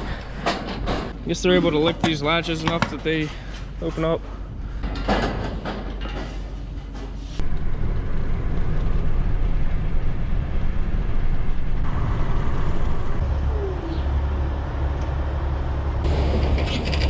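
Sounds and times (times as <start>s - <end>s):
pickup truck engine rumble: 6.6s - 17.0s.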